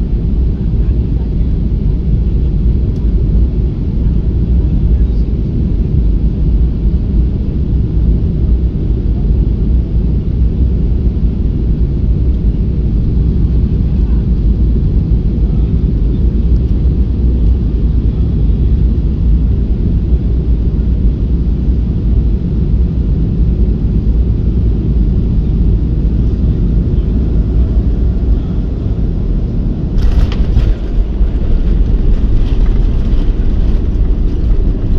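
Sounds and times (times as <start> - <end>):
aircraft engine rumble: 0.0 - 34.9
rattling clatter: 30.0 - 34.9.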